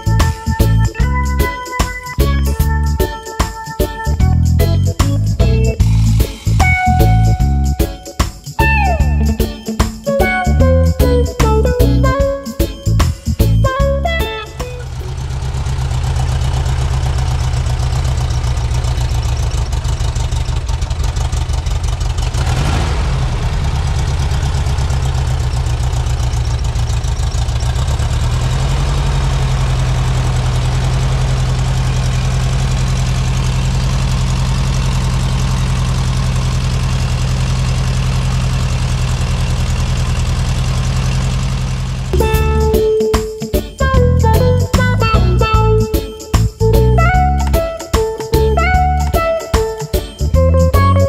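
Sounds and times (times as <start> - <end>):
car engine idling and revving: 13.2 - 42.2.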